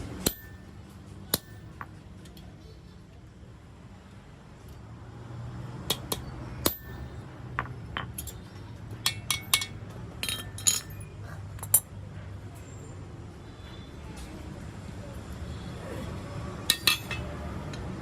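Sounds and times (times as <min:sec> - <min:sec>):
metal tools clinking: 0:06.7 - 0:07.2, 0:09.1 - 0:11.9, 0:16.7 - 0:17.3.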